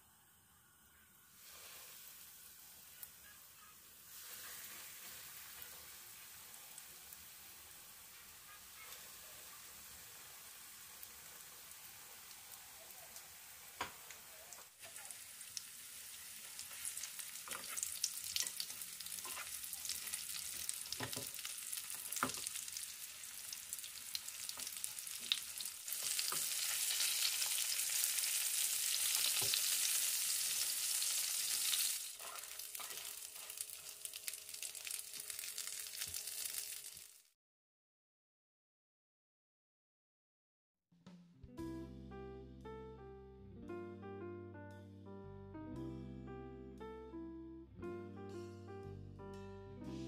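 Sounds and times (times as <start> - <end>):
cutlets sizzling in hot oil: 1.3 - 37.3.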